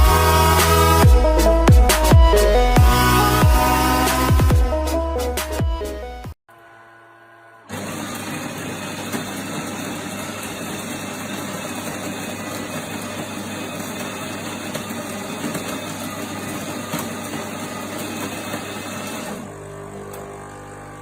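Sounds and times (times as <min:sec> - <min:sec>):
coffee machine running: 0:06.5 - 0:21.0.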